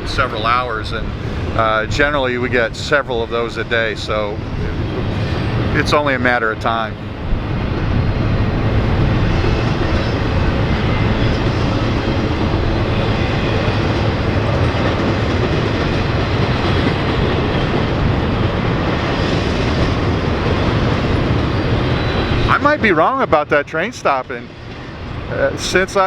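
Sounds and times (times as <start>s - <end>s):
freight train rolling past: 0.0s - 26.0s.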